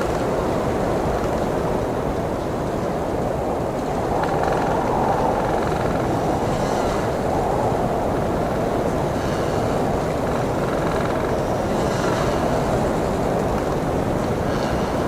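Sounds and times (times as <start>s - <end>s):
blizzard wind rushing: 0.0s - 15.0s.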